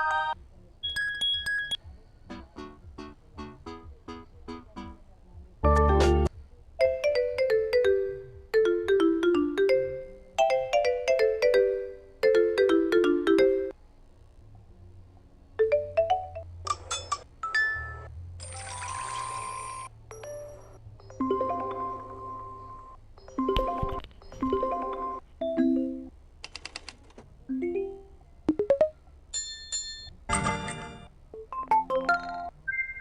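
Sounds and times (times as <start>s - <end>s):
electronic ringtone chimes: 17.5s - 26.1s.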